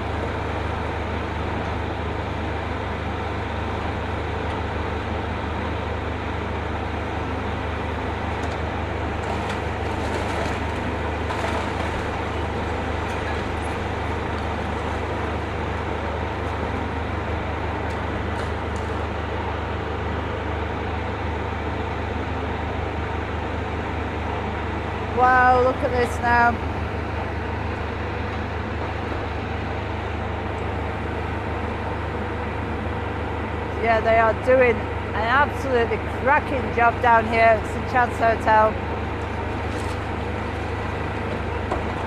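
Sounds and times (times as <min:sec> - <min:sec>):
excavator diesel engine running: 0:00.0 - 0:42.0
falling debris knocks: 0:07.8 - 0:16.8, 0:39.2 - 0:42.0.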